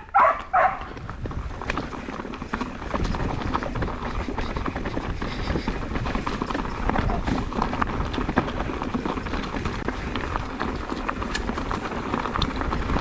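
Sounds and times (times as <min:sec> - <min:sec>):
wind on microphone: 0:00.0 - 0:02.0
bike rattling over rocks: 0:00.2 - 0:13.0.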